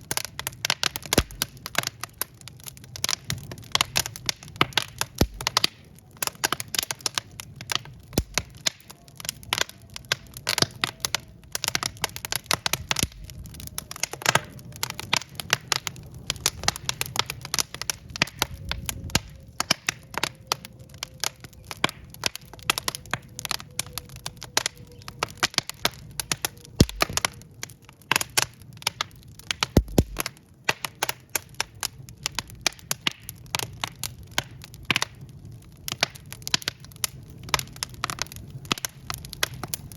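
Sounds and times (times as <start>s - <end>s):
logs crackling and popping: 0.0s - 39.9s
low rumble of flames: 0.0s - 39.9s
heavy pops with low thud: 4.6s - 5.6s, 8.2s - 8.5s, 26.8s - 27.2s, 29.7s - 30.3s.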